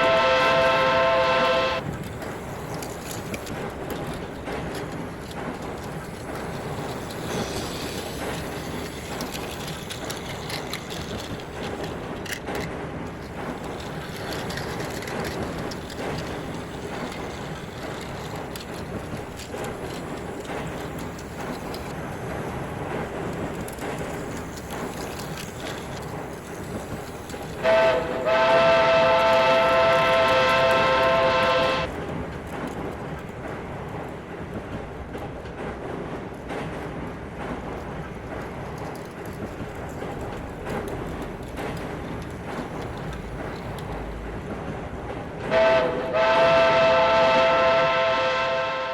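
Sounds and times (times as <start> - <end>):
steam whistle: 0.0 - 1.8, 27.6 - 31.9, 45.5 - 48.9
train running: 0.0 - 48.9
rattling ticks: 1.8 - 31.1, 32.0 - 44.7.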